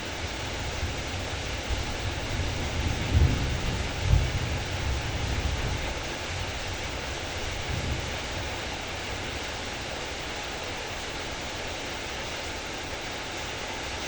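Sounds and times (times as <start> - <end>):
heavy rain hissing: 0.0 - 14.0
low rumble of thunder: 0.2 - 10.0.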